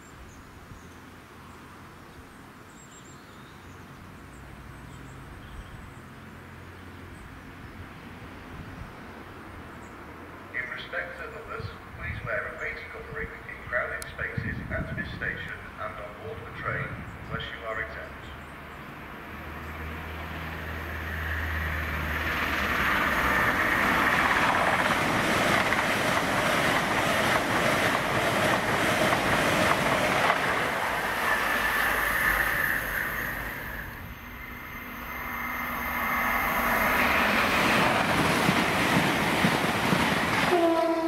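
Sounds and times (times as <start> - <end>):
train wheels rushing on rail: 19.4 - 41.0.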